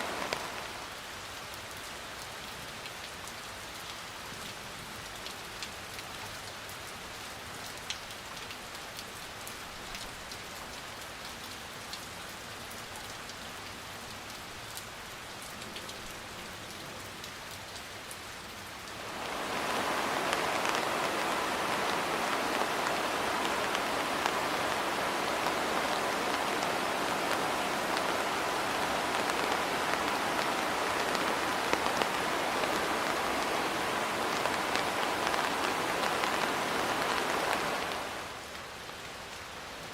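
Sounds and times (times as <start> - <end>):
steady rain falling: 0.0 - 39.9
raindrops ticking: 18.8 - 38.1.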